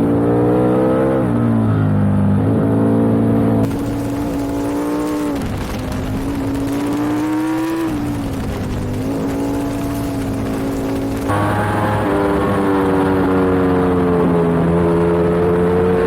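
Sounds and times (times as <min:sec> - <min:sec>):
motorcycle engine running hard: 0:03.4 - 0:16.0.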